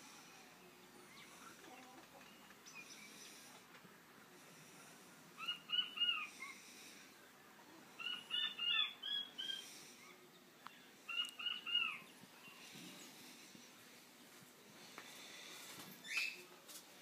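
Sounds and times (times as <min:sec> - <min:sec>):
bird chirping: 0:05.4 - 0:06.7, 0:07.9 - 0:13.4.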